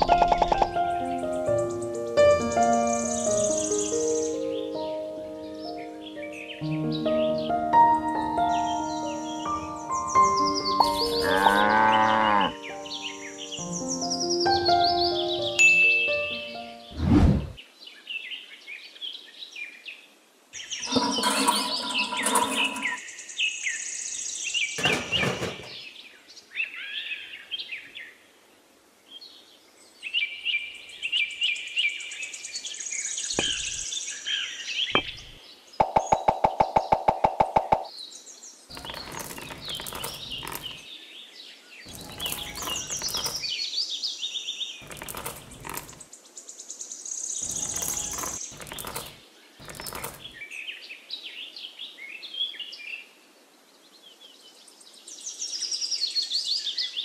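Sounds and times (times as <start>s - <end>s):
birds chirping: 8.2s - 15.8s, 32.5s - 41.1s, 41.8s - 43.8s, 44.7s - 46.4s, 47.2s - 50.8s
knocks and clatters: 20.8s - 23.0s, 24.8s - 25.8s, 33.4s - 33.8s, 38.7s - 40.8s, 41.9s - 43.5s, 44.8s - 46.0s, 47.4s - 50.4s.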